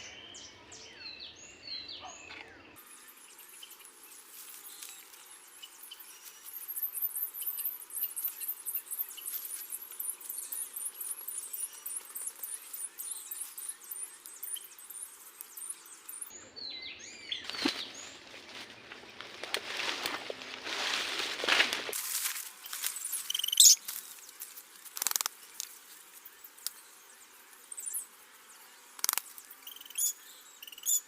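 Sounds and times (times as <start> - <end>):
faint outdoor hiss: 0.0 - 17.4, 21.5 - 31.0
insects chirping: 2.6 - 16.4, 17.4 - 31.0
small clicks: 24.9 - 25.8, 29.0 - 29.4.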